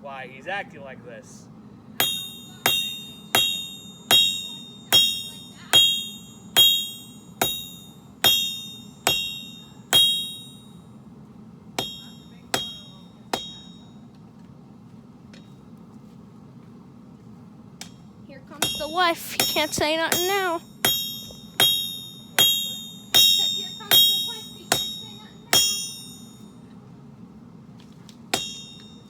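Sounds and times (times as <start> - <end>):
hammer striking steel on anvil: 2.0 - 10.9, 11.8 - 14.0, 17.8 - 26.6, 28.3 - 29.0.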